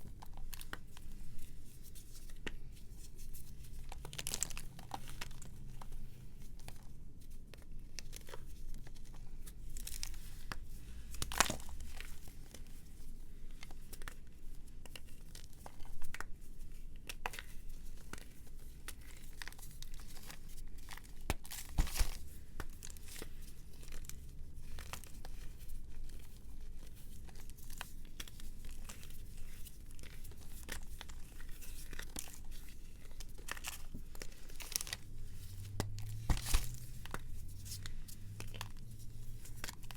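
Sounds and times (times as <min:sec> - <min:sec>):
brittle material crackling: 0:28.2 - 0:39.9.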